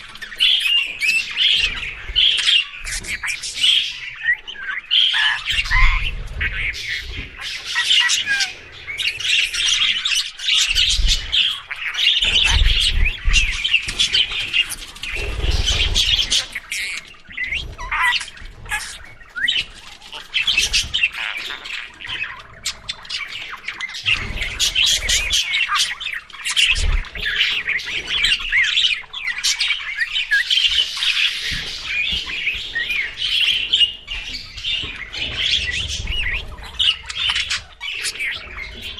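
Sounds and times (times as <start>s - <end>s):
budgerigars chattering: 0.0s - 38.9s.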